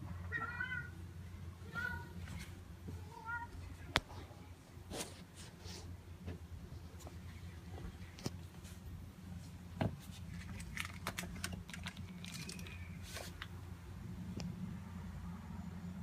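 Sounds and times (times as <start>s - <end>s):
low steady hum: 0.0s - 16.0s
handling clicks and rustles: 9.4s - 13.6s.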